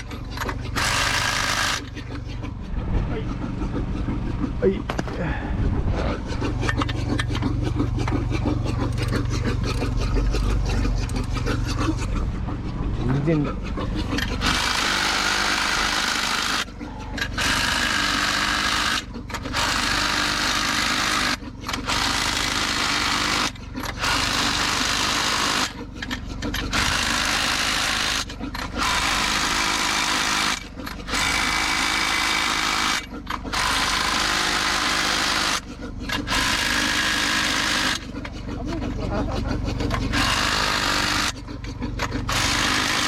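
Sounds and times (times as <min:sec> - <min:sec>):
steady low hum: 0:00.0 - 0:43.0
power tool bursts: 0:00.8 - 0:01.9, 0:26.7 - 0:38.0, 0:40.1 - 0:41.4, 0:42.3 - 0:43.0.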